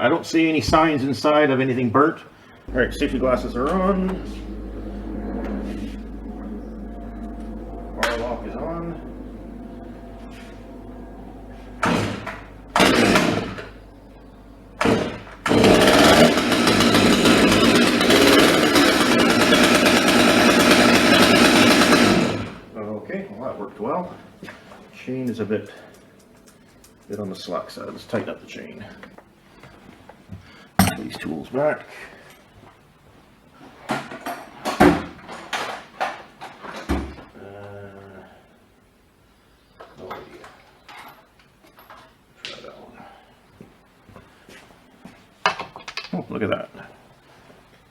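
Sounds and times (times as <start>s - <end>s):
chainsaw engine running: 2.7s - 22.6s
chainsaw pull-start bursts: 14.8s - 22.6s.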